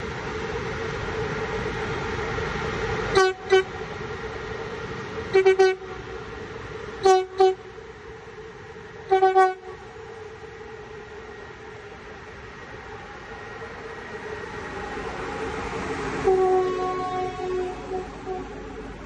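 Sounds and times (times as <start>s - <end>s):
steady pitched train hum: 0.0s - 19.0s
train horn short toots: 3.1s - 3.7s, 5.3s - 6.0s, 7.0s - 7.7s, 9.1s - 9.8s, 16.2s - 18.6s.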